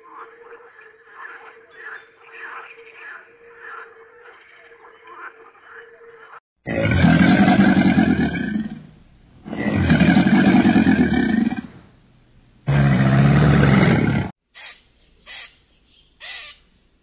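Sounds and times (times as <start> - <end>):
crocodile bellowing: 6.7 - 11.8, 12.7 - 14.3.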